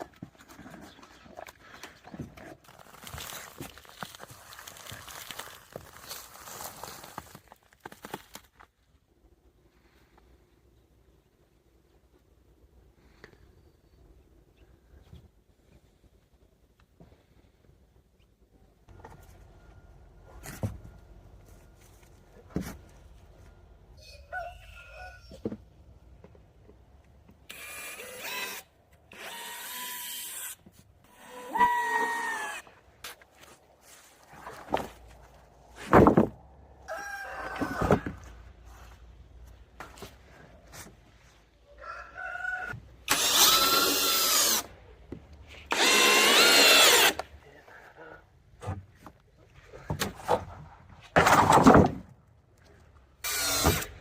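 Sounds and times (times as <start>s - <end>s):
power drill running: 27.5s - 30.5s, 43.1s - 44.7s, 45.7s - 47.2s, 53.2s - 53.9s.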